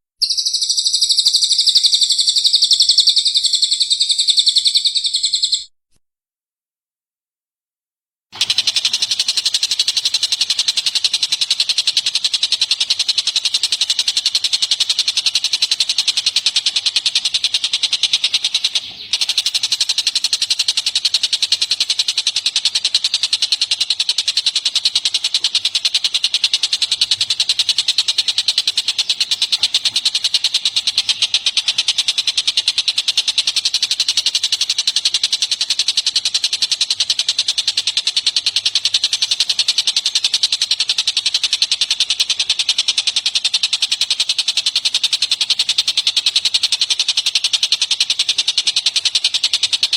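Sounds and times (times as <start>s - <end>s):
high-pitched bird trill: 0.2s - 5.7s, 8.6s - 49.9s.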